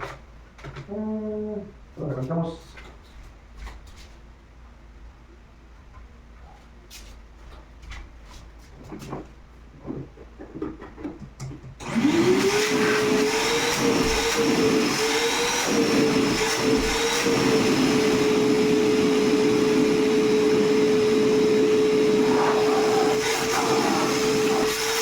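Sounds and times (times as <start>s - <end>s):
shop vacuum motor whine: 11.8s - 25.0s.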